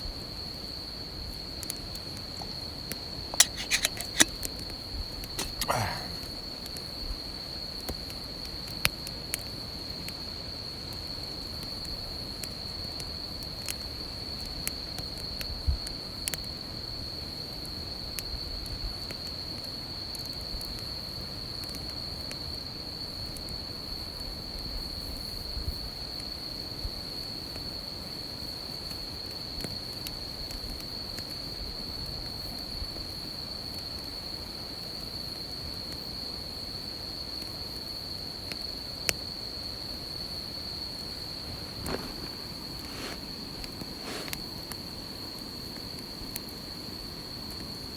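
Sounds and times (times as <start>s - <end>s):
insects chorus: 0.0s - 47.9s
campfire crackling and popping: 0.7s - 16.1s, 38.4s - 47.9s.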